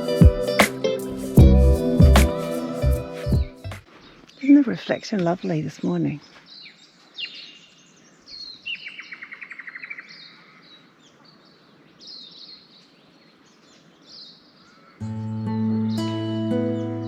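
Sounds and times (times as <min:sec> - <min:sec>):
guitar music: 0:00.0 - 0:03.8, 0:15.0 - 0:17.0
wild birds chirping: 0:03.8 - 0:17.0
bird trill: 0:06.5 - 0:10.8.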